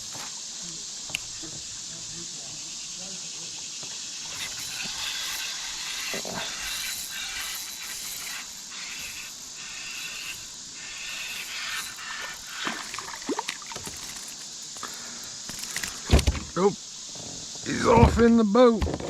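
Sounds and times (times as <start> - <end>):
river water hissing: 0.0 - 18.0
light water splashes: 12.6 - 16.1.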